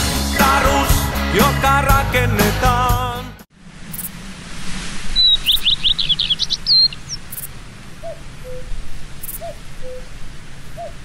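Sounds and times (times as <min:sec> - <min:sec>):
birdsong: 0:05.1 - 0:11.0.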